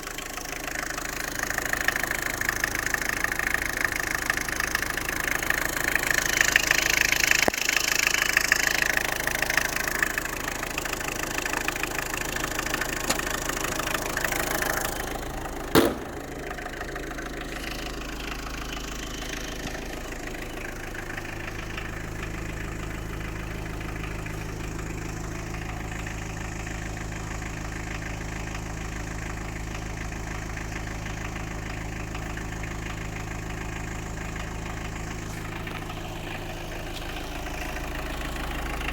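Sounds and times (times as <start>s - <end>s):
car engine idling: 0.0s - 38.9s
sharp thump: 15.7s - 16.4s.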